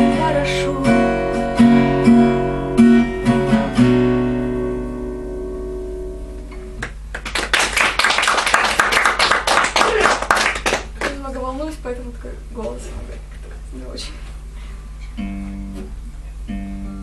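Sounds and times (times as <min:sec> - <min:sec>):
acoustic guitar strumming chords: 0:00.0 - 0:07.1, 0:14.9 - 0:17.0
audience applause: 0:06.8 - 0:11.2.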